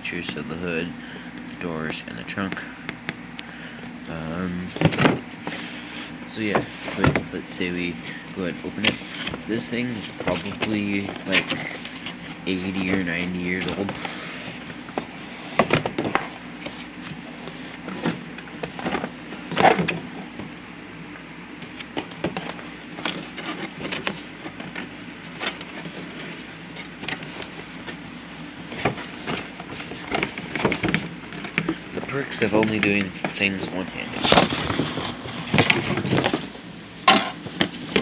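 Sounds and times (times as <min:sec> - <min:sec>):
cardboard packaging rustling: 0:04.4 - 0:20.4, 0:21.5 - 0:38.0.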